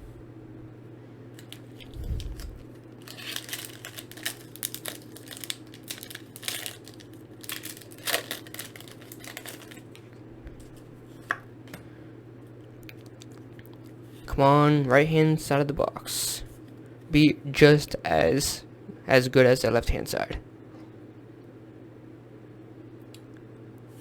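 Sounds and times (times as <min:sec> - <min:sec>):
low hum: 0:00.0 - 0:15.6
foil wrapper crinkling and tearing: 0:01.4 - 0:10.0.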